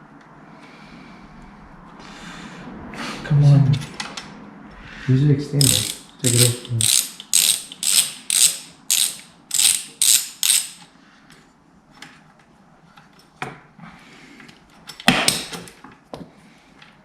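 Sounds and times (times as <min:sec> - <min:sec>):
socket ratchet clicking: 0:05.6 - 0:10.9.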